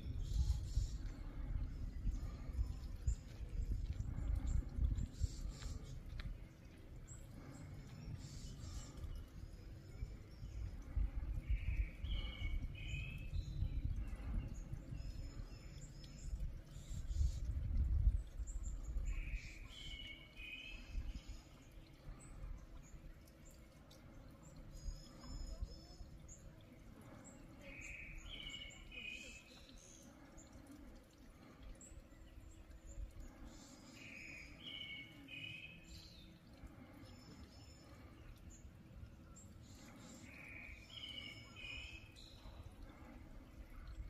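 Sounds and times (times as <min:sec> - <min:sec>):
low wind rumble: 0:00.0 - 0:19.4.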